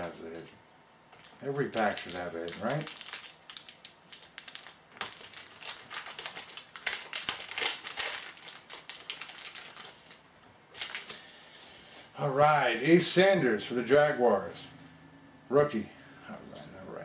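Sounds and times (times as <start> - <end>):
wrapper crinkling: 1.1 - 11.4.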